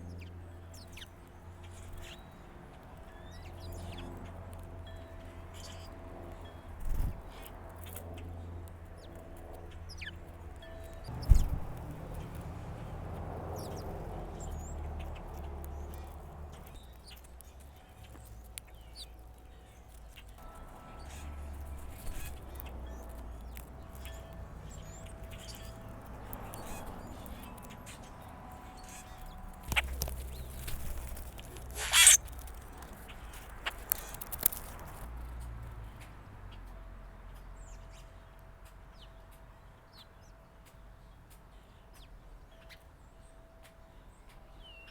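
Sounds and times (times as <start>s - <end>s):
songbirds chip calls: 9.0s - 34.8s
faint low rumble: 10.6s - 33.6s
low thump: 11.1s - 11.9s
bird falling call: 31.8s - 32.2s.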